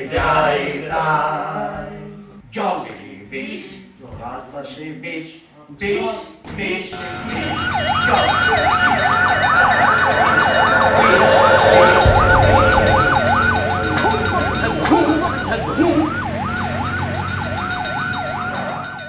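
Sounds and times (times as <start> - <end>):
siren yelping: 7.0 - 19.0
low rumble: 8.9 - 17.9.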